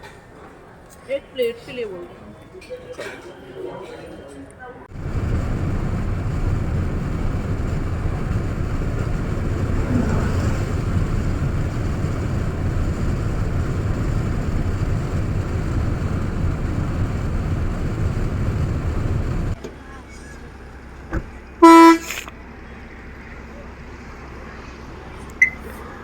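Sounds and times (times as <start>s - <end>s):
moving car road noise: 4.9s - 26.0s.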